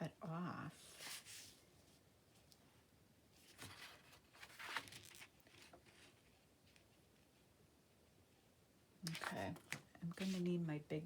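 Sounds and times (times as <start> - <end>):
paper page rustling: 3.4 - 6.9, 9.1 - 10.4.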